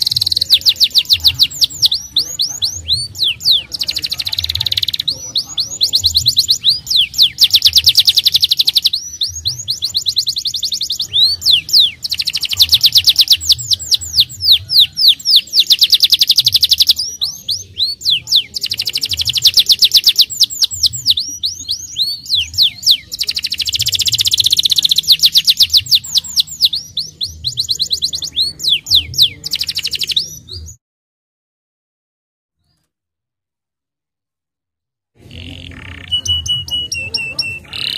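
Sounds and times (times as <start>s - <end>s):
canary singing trills: 0.0s - 30.8s, 35.2s - 37.9s.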